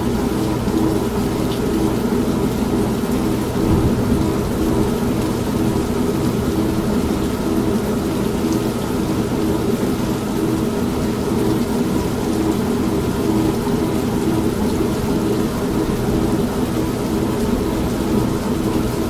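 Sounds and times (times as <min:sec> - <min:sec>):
steady rain: 0:00.0 - 0:19.0
washing machine motor humming: 0:00.0 - 0:19.0
low rumbling thunder: 0:03.4 - 0:09.4.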